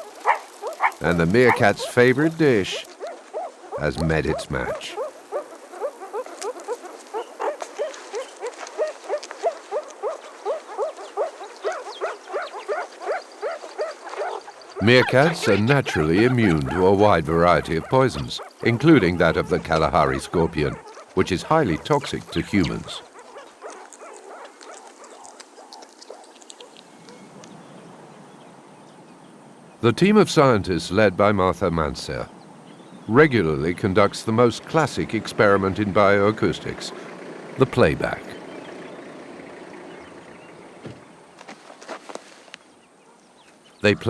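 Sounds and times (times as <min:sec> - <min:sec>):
meerkat calls: 0:00.0 - 0:26.8.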